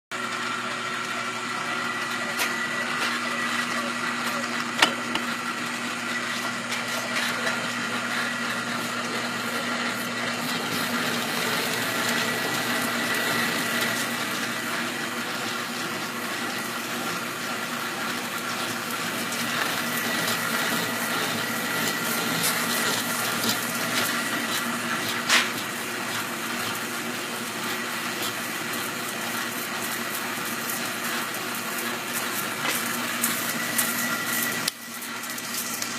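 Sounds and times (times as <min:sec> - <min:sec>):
drill press with gear whine: 0:00.1 - 0:35.9.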